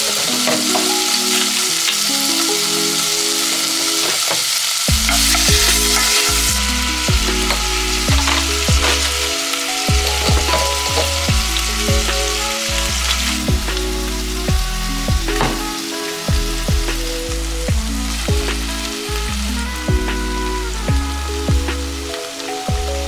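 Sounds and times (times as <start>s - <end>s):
food sizzling in a pan: 0.0s - 14.4s, 15.4s - 20.9s
background music with bass: 4.9s - 23.0s.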